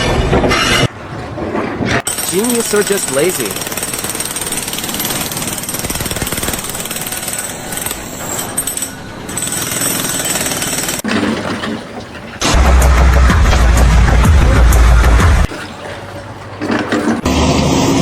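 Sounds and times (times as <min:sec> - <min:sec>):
jackhammer hammering: 0:02.0 - 0:11.3, 0:12.4 - 0:15.5.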